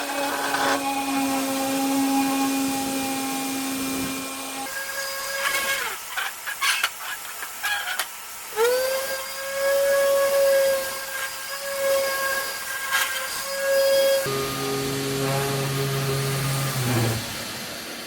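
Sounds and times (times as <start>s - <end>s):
electric sander whining: 14.2s - 17.3s.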